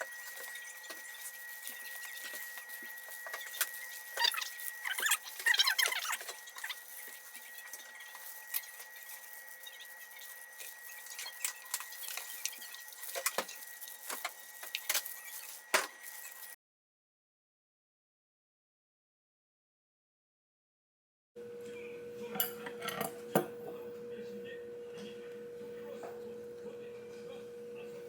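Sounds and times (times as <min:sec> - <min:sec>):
crinkly rustling: 0:00.0 - 0:16.6.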